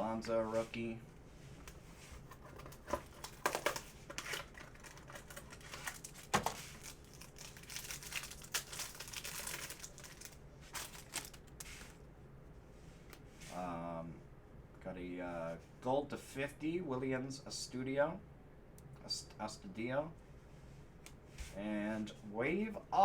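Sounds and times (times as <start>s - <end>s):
packaging crinkling and rustling: 1.7s - 12.0s.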